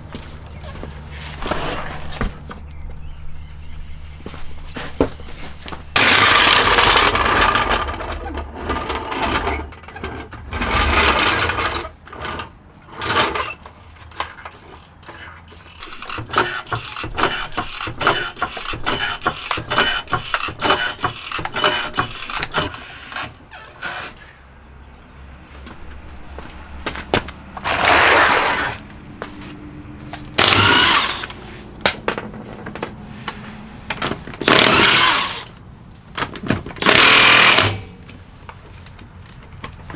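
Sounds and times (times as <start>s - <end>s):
tools clicking and clinking: 13.2s - 24.4s, 27.6s - 39.9s.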